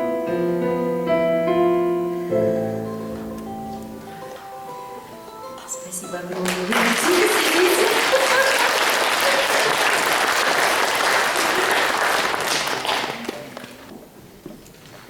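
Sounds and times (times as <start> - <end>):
audience applauding: 6.3 - 13.9.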